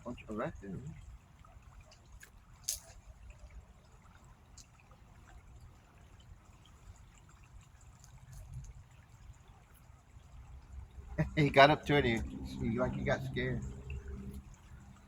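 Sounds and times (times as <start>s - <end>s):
faint trickle of creek water: 0.0s - 15.0s
steady low rumble: 10.1s - 15.0s.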